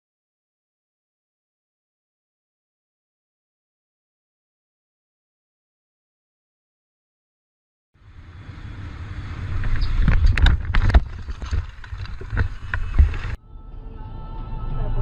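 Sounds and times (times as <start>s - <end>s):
road and wind noise: 8.0s - 13.4s.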